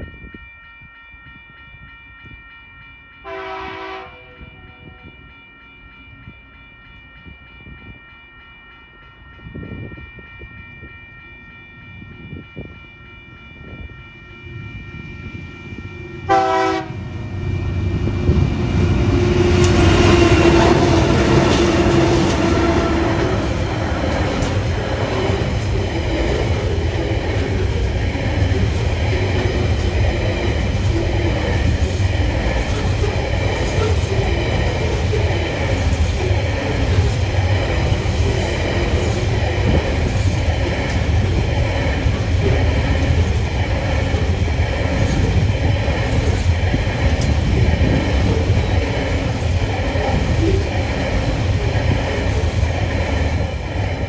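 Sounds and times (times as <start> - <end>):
train horn blast: 3.2 - 4.5, 16.3 - 17.2, 19.2 - 23.4
diesel locomotive engines: 3.2 - 54.0
wagons rumbling on rails: 12.2 - 54.0.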